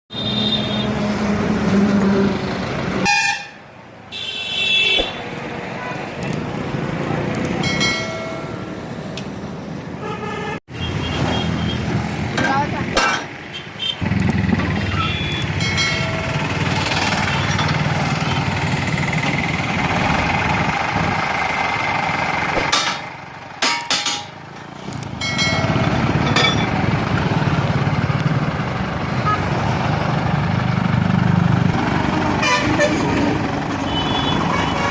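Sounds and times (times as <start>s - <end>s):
tractor diesel engine running: 12.1s - 34.9s.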